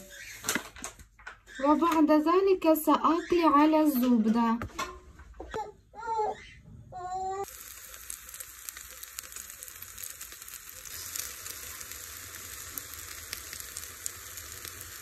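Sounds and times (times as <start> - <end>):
fritter sizzling in pan: 7.4 - 15.0.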